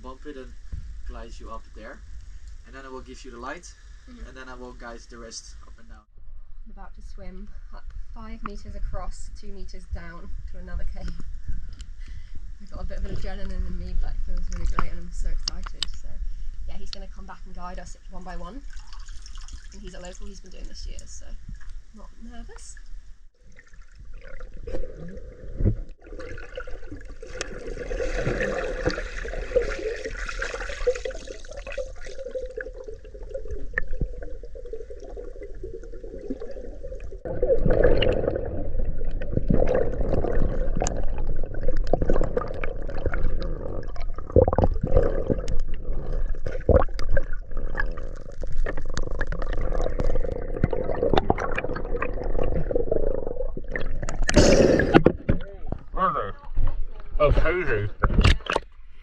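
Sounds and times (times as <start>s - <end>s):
water gurgling and sloshing: 7.2s - 59.0s
sharp splashes and knocks: 23.7s - 32.7s.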